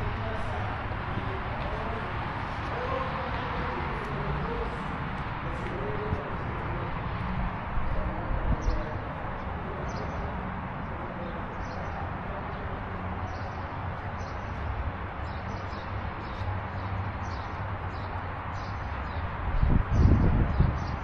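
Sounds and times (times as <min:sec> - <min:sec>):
small birds chirping: 0:08.4 - 0:21.0.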